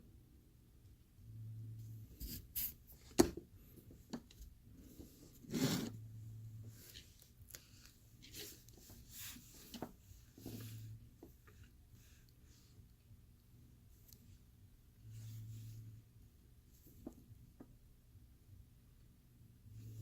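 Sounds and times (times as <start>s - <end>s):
low hum: 0.0s - 2.5s, 5.9s - 6.9s.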